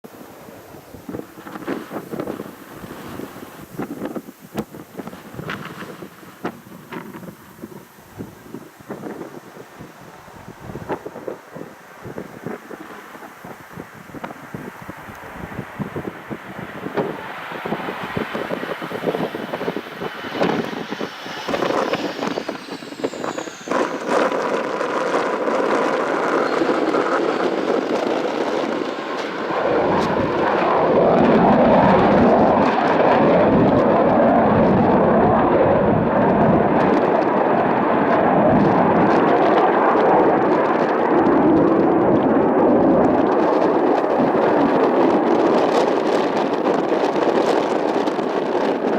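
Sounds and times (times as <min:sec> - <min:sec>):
jet engine whine: 0:00.0 - 0:48.9
jet engines roaring: 0:00.0 - 0:48.9.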